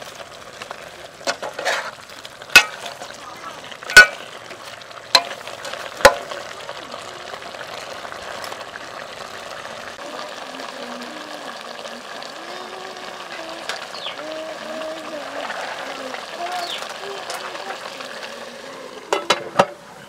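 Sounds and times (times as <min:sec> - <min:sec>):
food sizzling: 0:00.0 - 0:20.0
metal ladle clanking against pot: 0:02.6 - 0:03.1, 0:05.1 - 0:06.4.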